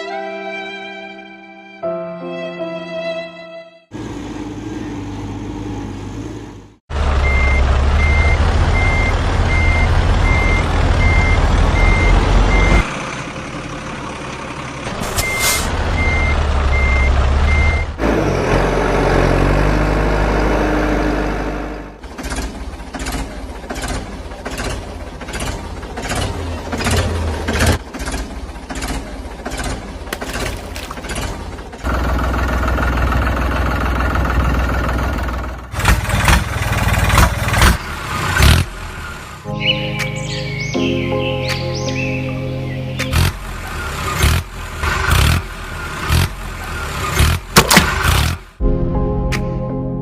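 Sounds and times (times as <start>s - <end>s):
diesel engine rumbling: 3.9s - 49.3s
reversing alarm beeping: 7.2s - 12.9s, 15.1s - 17.9s.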